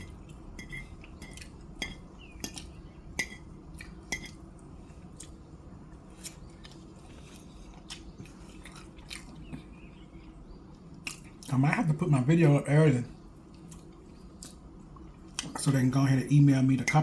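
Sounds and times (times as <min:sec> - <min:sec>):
person chewing crispy chicken: 0:03.7 - 0:11.5, 0:13.4 - 0:15.5.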